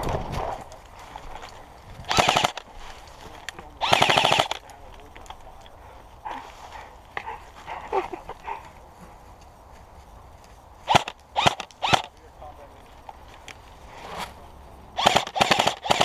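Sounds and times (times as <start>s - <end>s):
airsoft rifle bursts of clicks: 2.1s - 2.7s, 3.8s - 5.4s, 10.9s - 12.2s, 15.0s - 16.0s.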